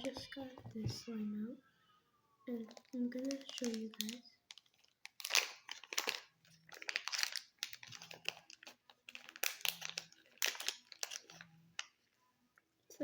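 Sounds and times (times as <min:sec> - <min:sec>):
plastic packaging crinkling: 0:02.5 - 0:12.1.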